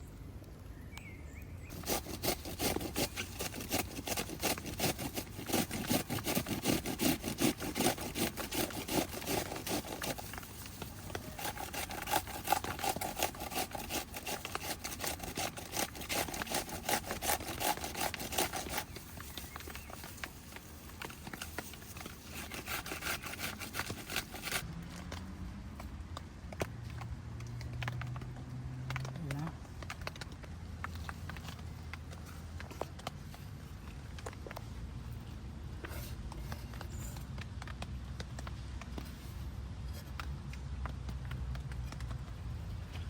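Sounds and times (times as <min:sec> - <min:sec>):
rapid rhythmic scraping: 0:01.7 - 0:24.6.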